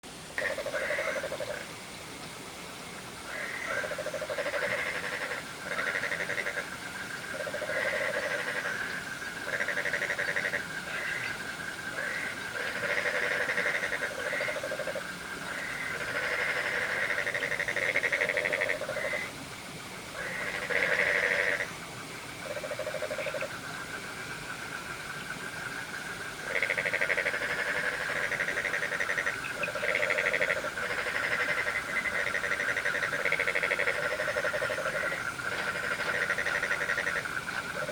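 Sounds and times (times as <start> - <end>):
frogs croaking: 0.4 - 37.9
crickets trilling: 20.2 - 37.9.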